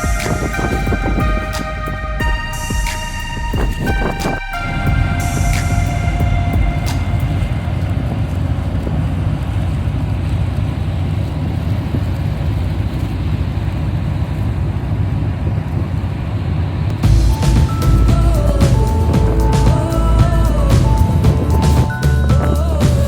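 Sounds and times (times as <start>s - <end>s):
music: 0.0s - 7.8s, 17.0s - 23.0s
rushing noise: 0.0s - 11.7s, 16.9s - 23.0s
vehicle rumble: 0.0s - 23.0s.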